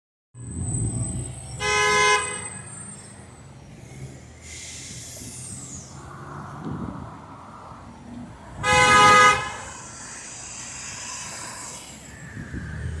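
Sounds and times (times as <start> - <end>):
engines rumbling in traffic: 0.4 - 13.0
fire truck horn blast: 1.6 - 2.5, 8.6 - 9.7
hiss with falling whistle: 4.4 - 6.4, 9.5 - 13.0.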